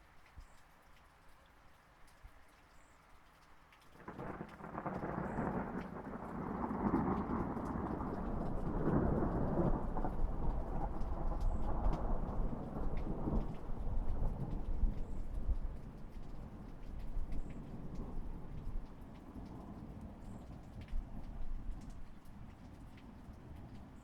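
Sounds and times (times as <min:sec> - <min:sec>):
rain pattering: 0:00.0 - 0:24.0
rolling thunder: 0:04.1 - 0:21.9.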